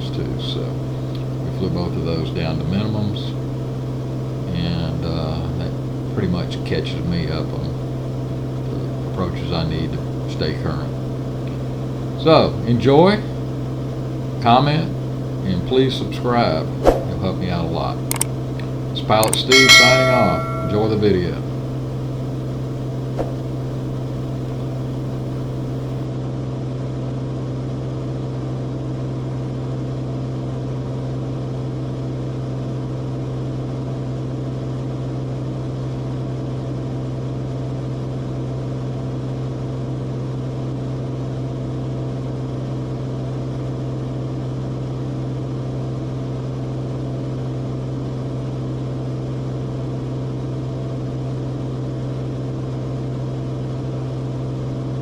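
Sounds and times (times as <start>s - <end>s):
airplane engine and propeller drone: 0.0s - 19.7s, 20.7s - 26.8s.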